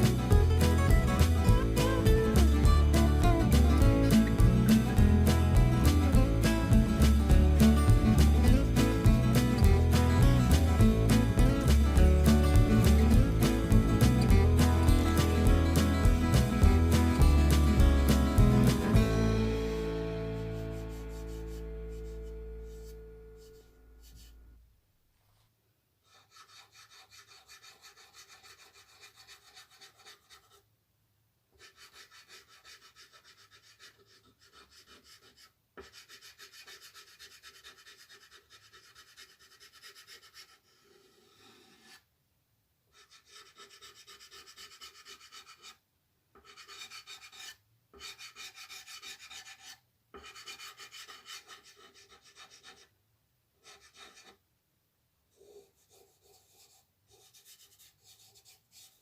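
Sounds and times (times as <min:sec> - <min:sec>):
drawing tool scratching on paper: 0:20.3 - 0:24.4, 0:26.0 - 0:30.6, 0:31.6 - 0:42.1, 0:42.9 - 0:45.8, 0:46.4 - 0:52.9, 0:53.6 - 0:54.4, 0:55.3 - 0:59.0.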